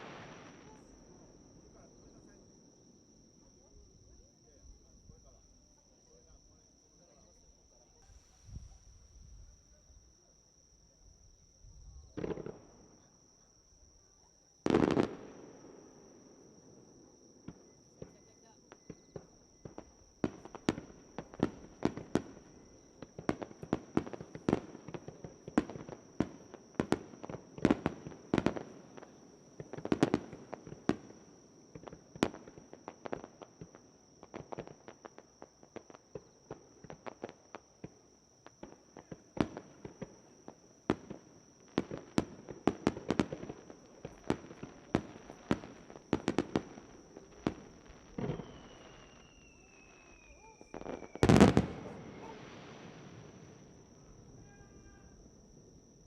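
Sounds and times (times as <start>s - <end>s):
firework falling whistle: 0.0s - 1.0s, 41.8s - 55.4s
fireworks bursting: 0.0s - 2.2s, 12.1s - 13.0s, 14.6s - 16.5s, 17.5s - 55.3s.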